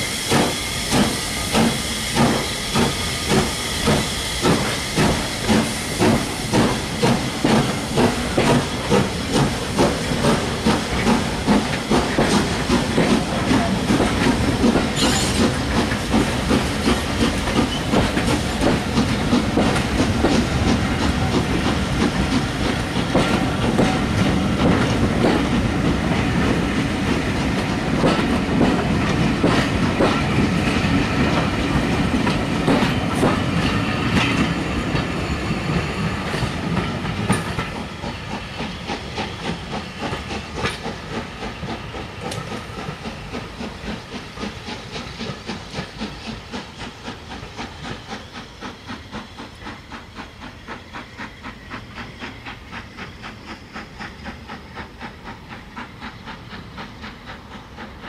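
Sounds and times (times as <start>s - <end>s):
train wheels clickety-clacking: 0.0s - 58.0s.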